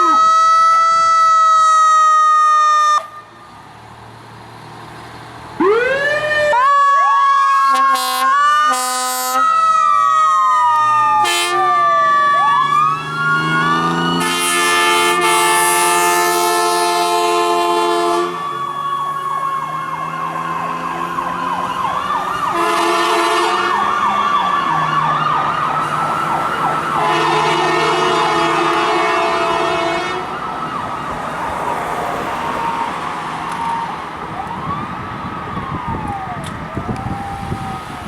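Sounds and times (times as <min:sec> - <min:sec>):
emergency siren wail and yelp: 0:00.0 - 0:03.6, 0:05.6 - 0:38.0
long horn blasts: 0:07.6 - 0:09.6, 0:11.2 - 0:11.9, 0:13.8 - 0:18.7, 0:22.5 - 0:24.0, 0:27.0 - 0:30.4.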